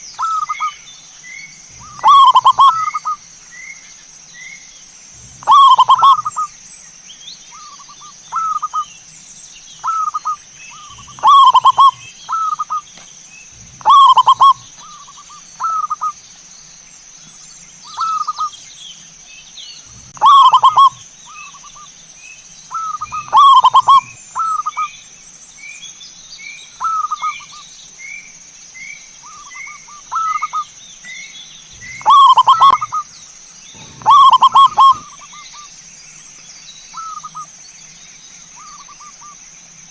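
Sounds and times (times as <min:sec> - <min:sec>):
dove cooing: 0:01.7 - 0:03.2, 0:05.2 - 0:06.5, 0:09.8 - 0:12.8, 0:13.6 - 0:16.1, 0:19.9 - 0:21.0, 0:22.8 - 0:24.9, 0:31.7 - 0:33.1, 0:33.7 - 0:35.6.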